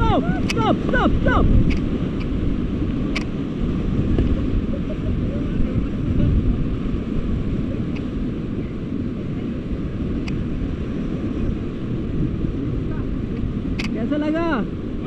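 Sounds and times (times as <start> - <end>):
whitewater rapids rushing: 0.0 - 9.6
wind buffeting microphone: 0.0 - 15.0.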